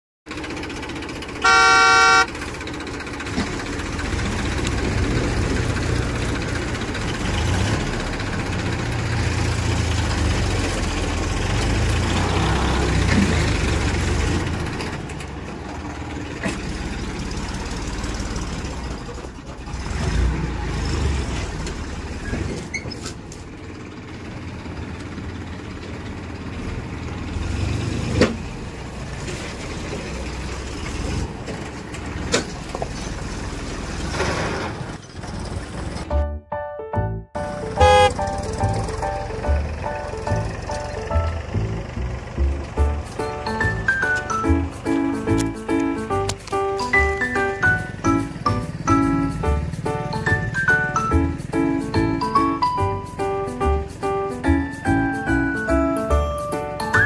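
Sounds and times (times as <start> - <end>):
heavy vehicle engine rumbling: 0.3 - 57.0
vehicle horn: 1.4 - 2.4, 37.7 - 38.4.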